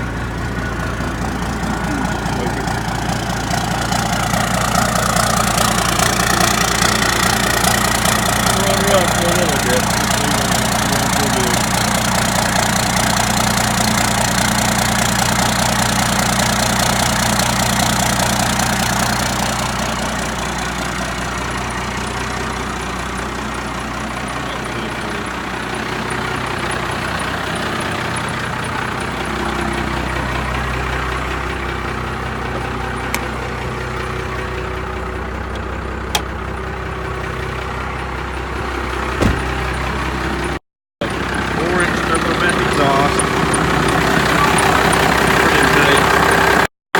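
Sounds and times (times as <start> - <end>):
diesel engine idling: 0.0 - 46.7.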